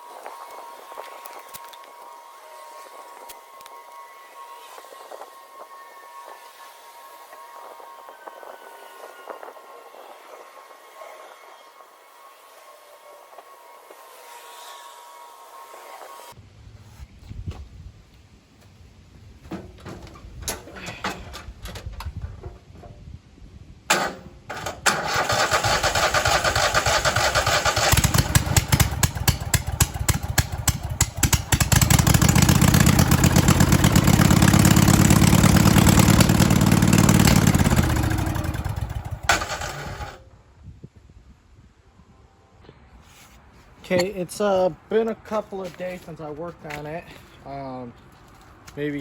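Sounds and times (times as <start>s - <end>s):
lawnmower engine cranking and running: 19.5s - 23.0s, 23.9s - 40.2s.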